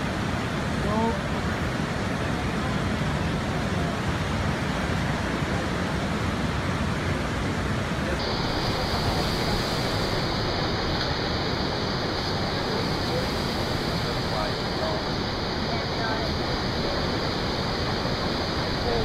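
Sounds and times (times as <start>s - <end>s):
ocean surf breaking: 0.0s - 19.0s
high hiss: 8.1s - 19.0s.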